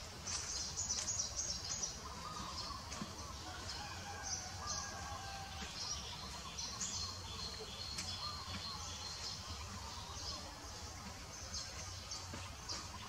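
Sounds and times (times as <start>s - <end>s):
birds chirping and calling: 0.0s - 13.0s.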